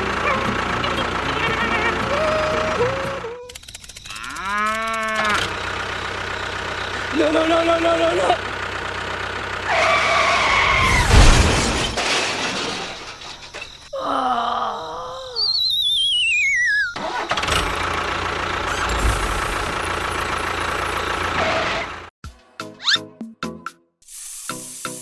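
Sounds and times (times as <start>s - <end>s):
engine rumble: 0.0s - 3.5s, 4.7s - 13.5s, 17.0s - 22.1s
warbling falling whistle: 14.8s - 17.4s.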